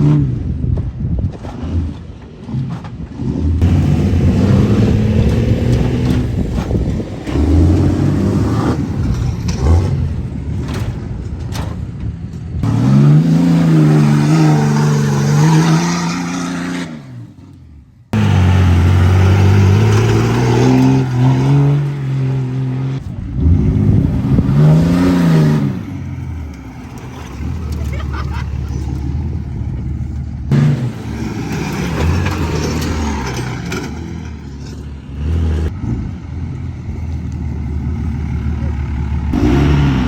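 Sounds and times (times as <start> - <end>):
pickup truck engine revving: 3.2 - 10.4, 18.1 - 34.4, 37.7 - 40.0.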